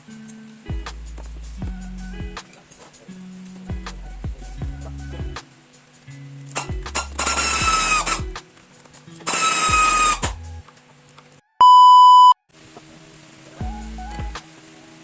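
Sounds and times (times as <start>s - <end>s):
background music: 0.0s - 10.6s, 13.6s - 14.4s
electronic beep: 11.6s - 12.4s.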